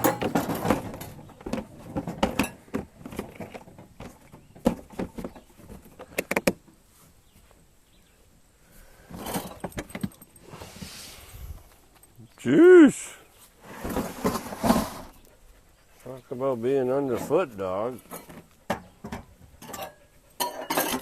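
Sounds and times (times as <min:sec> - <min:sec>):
cooking gear clinking and rattling: 0:00.0 - 0:00.6.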